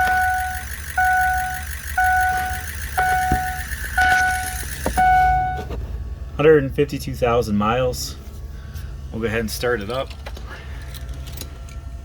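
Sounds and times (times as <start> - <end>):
dashboard warning chime beeping: 0.0 - 5.8.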